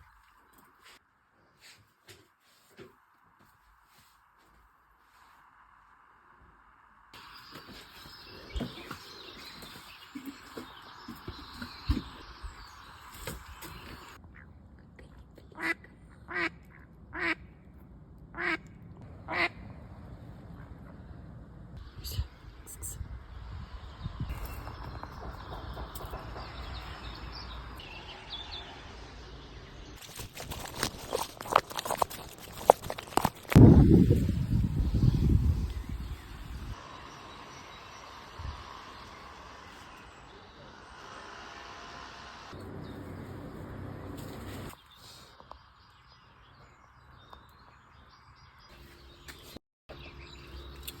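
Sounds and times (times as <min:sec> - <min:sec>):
birds calling: 0:07.2 - 0:14.2
birds chirping: 0:07.2 - 0:14.5, 0:21.8 - 0:41.7, 0:42.6 - 0:51.0.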